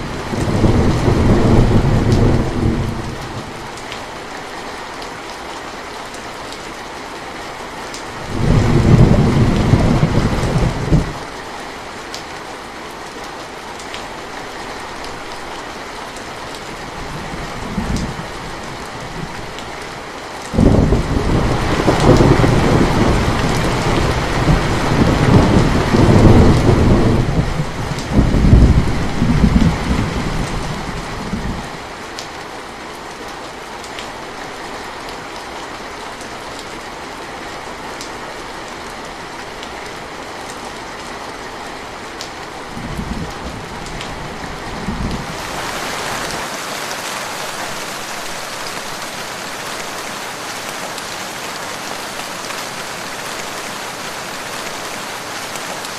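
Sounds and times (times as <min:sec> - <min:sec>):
thunder rumbling: 0:00.0 - 0:03.6, 0:08.2 - 0:11.3, 0:20.6 - 0:30.3
steady rain: 0:00.0 - 0:55.9.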